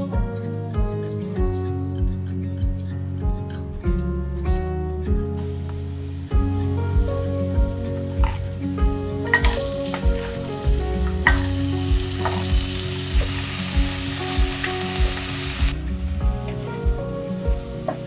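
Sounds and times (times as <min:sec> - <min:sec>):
soft background music with beat: 0:00.0 - 0:18.0
vegetables sizzling in oil: 0:05.4 - 0:16.7.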